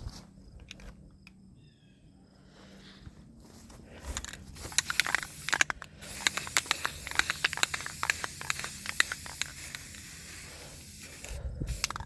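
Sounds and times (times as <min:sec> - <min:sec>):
sharp clicks: 0:04.2 - 0:10.1
spray-paint can hissing: 0:04.2 - 0:12.0.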